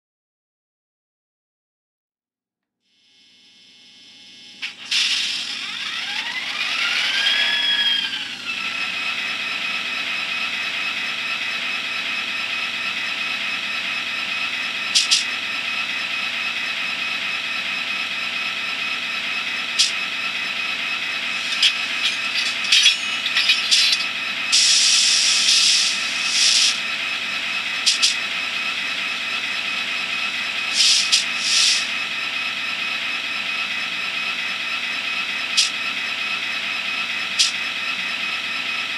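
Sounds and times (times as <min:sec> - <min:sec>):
model diesel locomotive sound: 0:04.6 - 0:38.9
brief air hisses: 0:24.6 - 0:26.8, 0:30.8 - 0:31.9.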